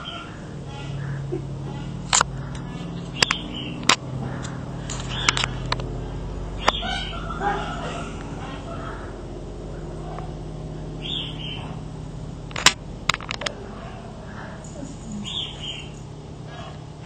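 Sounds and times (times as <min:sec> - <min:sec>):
steady low hum: 0:00.0 - 0:17.0
sharp clicks: 0:02.1 - 0:06.0, 0:12.4 - 0:13.6.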